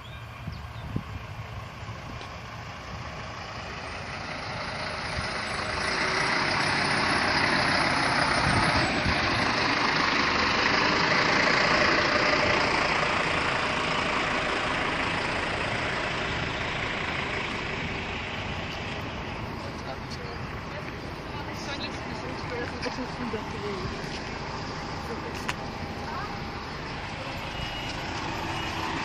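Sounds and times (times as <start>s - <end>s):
railcar diesel engine running: 0.0s - 29.0s.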